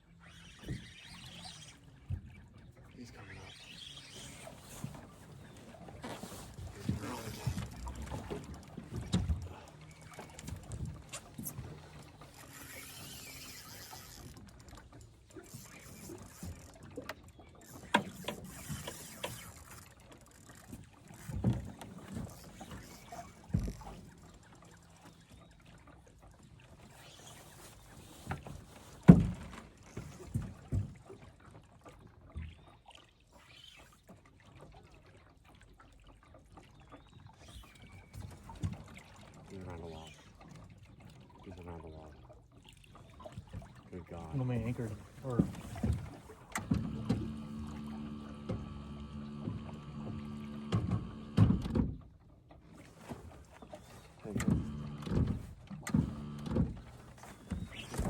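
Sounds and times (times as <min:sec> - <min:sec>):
gear knocking against boat: 0:04.8 - 0:12.8, 0:43.4 - 0:58.0.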